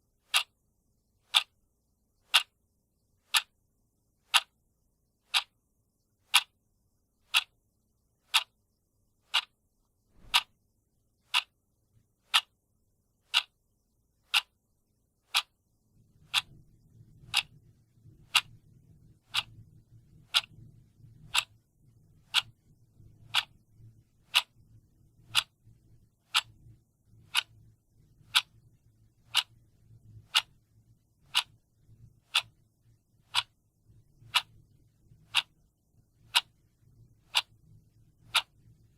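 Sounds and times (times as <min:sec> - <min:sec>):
clock ticking: 0:00.2 - 0:00.6, 0:01.2 - 0:01.6, 0:02.2 - 0:02.6, 0:03.2 - 0:03.6, 0:04.2 - 0:04.6, 0:05.2 - 0:06.6, 0:07.2 - 0:07.6, 0:08.2 - 0:08.6, 0:09.2 - 0:09.6, 0:10.2 - 0:10.6, 0:11.2 - 0:11.6, 0:12.2 - 0:12.6, 0:13.2 - 0:13.6, 0:14.2 - 0:24.6, 0:25.2 - 0:31.6, 0:32.2 - 0:38.9
faint low rumble: 0:14.8 - 0:38.9.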